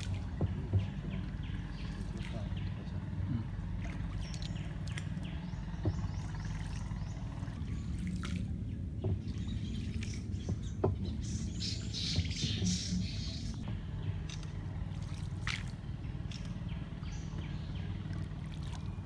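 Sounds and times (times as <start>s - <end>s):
water dripping around boat: 0.0s - 19.0s
bird chirping: 8.6s - 14.5s.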